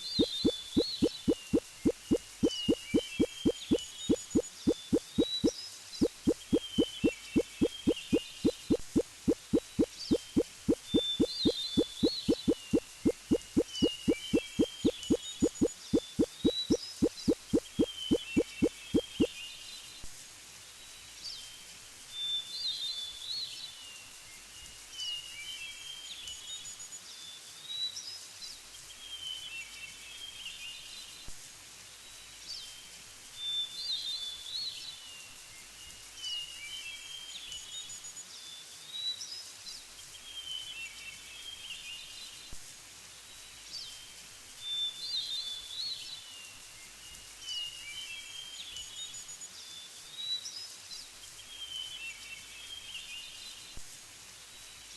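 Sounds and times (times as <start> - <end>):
songbird chirping: 0.0 - 19.4
faint background hiss: 0.0 - 54.9.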